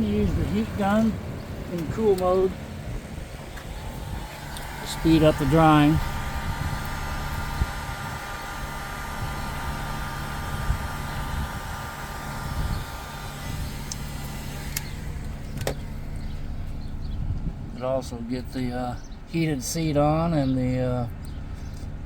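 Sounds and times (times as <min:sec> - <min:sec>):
heat gun blowing air: 0:03.6 - 0:16.0.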